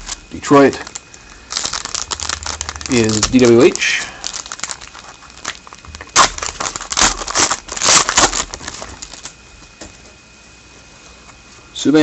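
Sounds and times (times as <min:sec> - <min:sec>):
trading cards rustling: 0:00.0 - 0:09.3.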